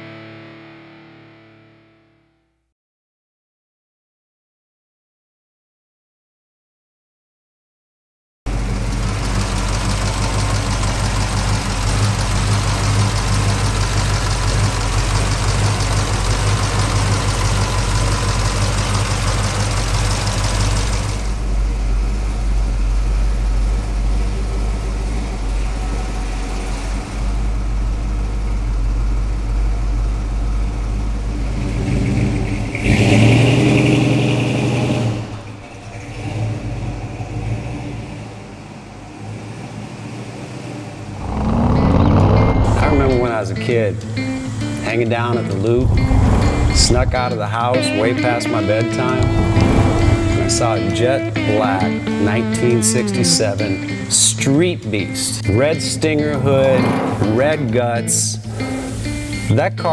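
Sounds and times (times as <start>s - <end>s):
vehicle engine revving: 8.5s - 54.2s, 56.3s - 57.7s.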